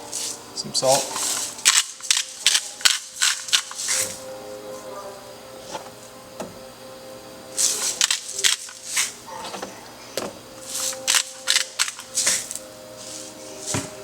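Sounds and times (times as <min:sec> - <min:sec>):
salt sprinkled onto fish: 0:00.1 - 0:04.2, 0:07.6 - 0:09.2, 0:10.6 - 0:13.8.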